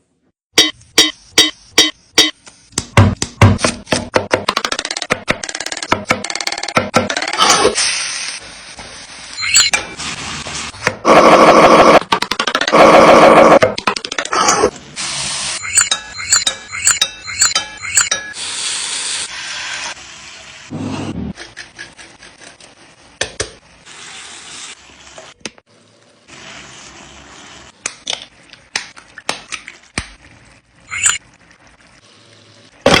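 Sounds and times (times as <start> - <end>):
food sizzling in a frying pan: 18.4 - 20.7.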